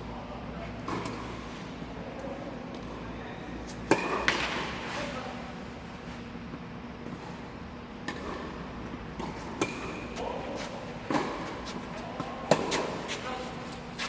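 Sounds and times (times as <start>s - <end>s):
racket hitting tennis ball: 3.7s - 4.9s, 9.1s - 14.0s.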